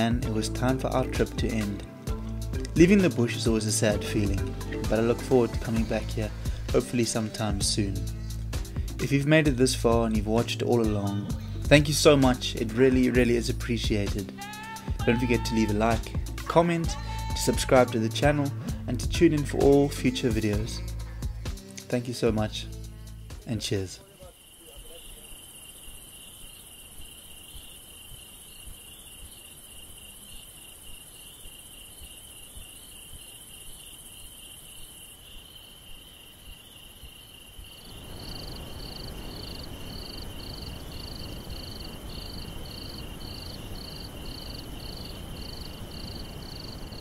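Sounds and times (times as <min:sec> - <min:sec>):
higher repeating insect chirp: 0:22.7 - 0:47.0
insects trilling: 0:22.7 - 0:47.0.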